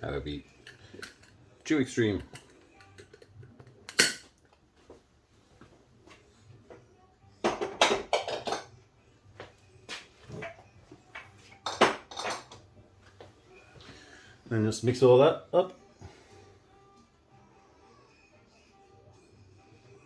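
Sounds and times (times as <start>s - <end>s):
kitchenware clattering: 0.5s - 1.4s, 2.1s - 4.4s, 7.4s - 8.8s, 11.4s - 12.7s.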